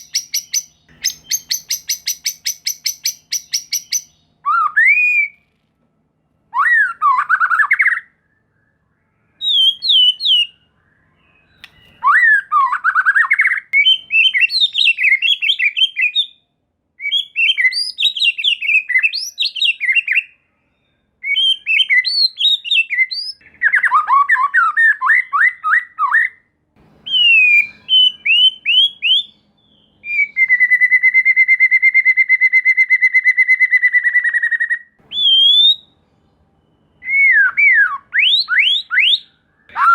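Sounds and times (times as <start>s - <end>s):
long rattling bird trill: 0.0s - 4.2s
bird singing whistled trills: 0.0s - 5.4s, 6.5s - 16.4s, 17.0s - 39.9s.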